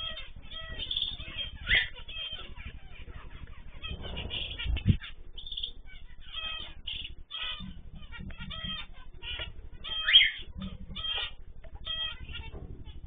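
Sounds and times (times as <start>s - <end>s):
caged birds chirping: 0.0s - 13.0s.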